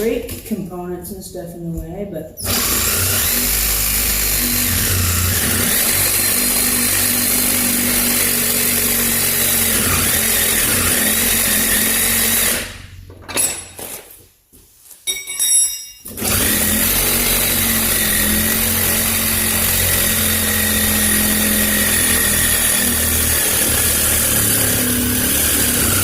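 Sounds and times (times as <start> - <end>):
handheld power tool running: 2.4 - 13.0, 16.1 - 26.0.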